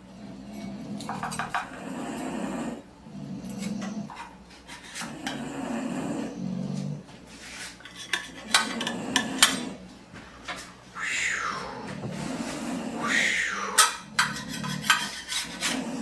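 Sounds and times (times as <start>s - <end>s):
dishes and cutlery clinking: 0.5s - 1.8s, 7.7s - 9.8s, 13.8s - 15.8s.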